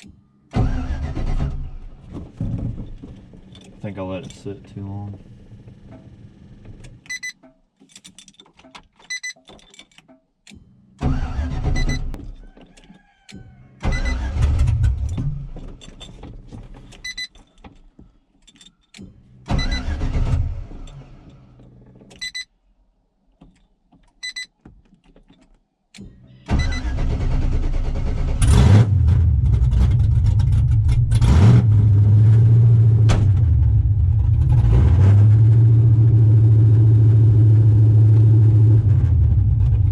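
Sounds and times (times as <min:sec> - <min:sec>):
truck engine cranking: 0:00.0 - 0:02.2, 0:05.5 - 0:12.9, 0:13.8 - 0:22.4, 0:23.4 - 0:33.0
engine running and revving: 0:28.4 - 0:39.9.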